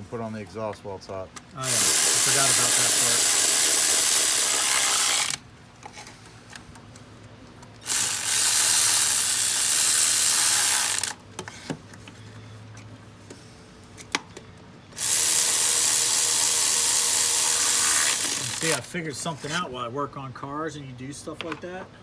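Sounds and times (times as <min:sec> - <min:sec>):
power tool running: 0:01.6 - 0:05.4, 0:07.8 - 0:11.2, 0:15.0 - 0:18.9.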